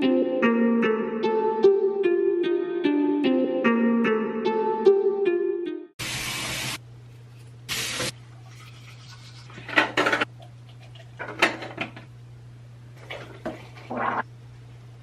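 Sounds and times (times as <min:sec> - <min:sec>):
objects clattering: 0:09.5 - 0:12.1, 0:13.0 - 0:14.0.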